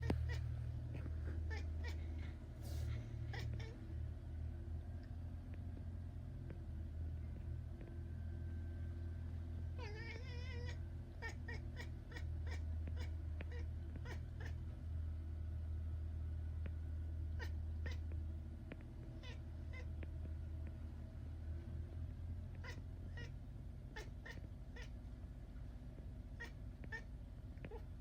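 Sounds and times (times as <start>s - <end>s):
cat trilling: 0.0s - 2.2s, 3.2s - 3.8s, 9.8s - 14.6s, 22.6s - 23.4s, 24.0s - 25.0s, 26.4s - 27.1s
low hum: 0.0s - 28.0s.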